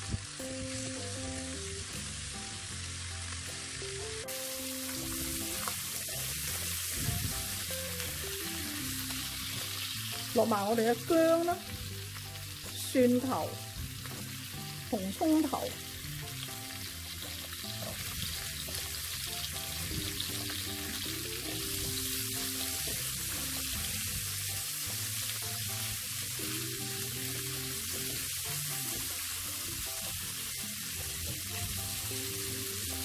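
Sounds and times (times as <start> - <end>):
pork sizzling in hot oil: 0.0 - 33.0
soft background music: 0.0 - 33.0.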